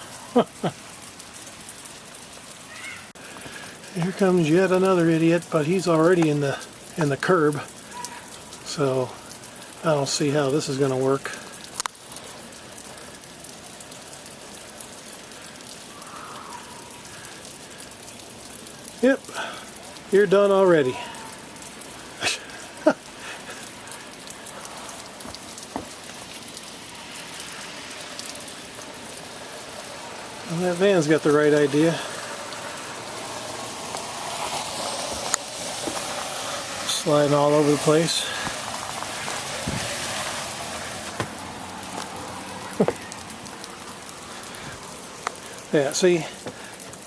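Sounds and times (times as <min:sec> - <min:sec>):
sleet pattering on surfaces: 0:02.7 - 0:47.0
sleet ticking on surfaces: 0:40.9 - 0:47.0.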